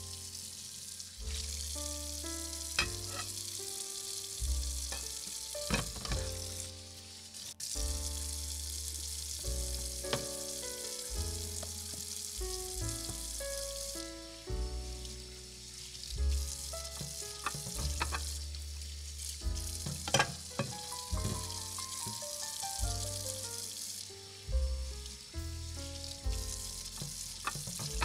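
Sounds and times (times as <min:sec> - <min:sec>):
background music: 0:00.0 - 0:28.0
food sizzling in a saucepan: 0:00.0 - 0:28.0
metal spoon knocking against pan: 0:02.8 - 0:03.3.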